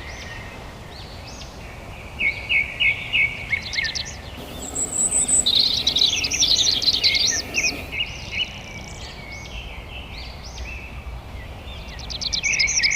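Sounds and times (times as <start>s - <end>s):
songbirds chirping and singing: 3.7s - 8.1s.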